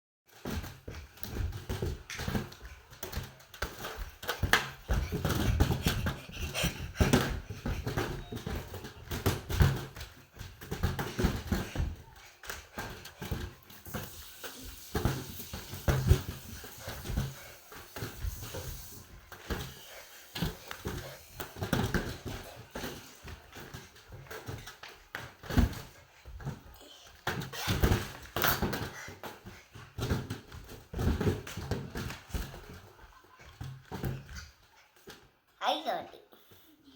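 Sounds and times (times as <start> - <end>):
person panting: 4.2 - 8.7.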